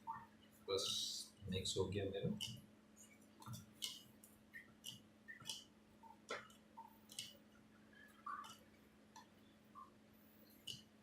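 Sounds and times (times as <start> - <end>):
faint steady hum: 0.0 - 11.0
faint clicks and soft taps: 2.2 - 11.0.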